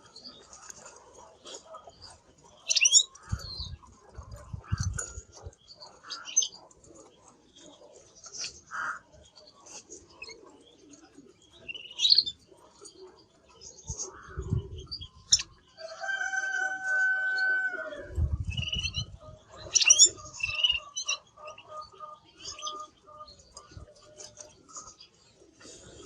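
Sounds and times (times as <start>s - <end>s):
canary chirping: 2.0s - 3.8s, 11.5s - 12.4s, 15.0s - 15.6s, 18.5s - 25.2s.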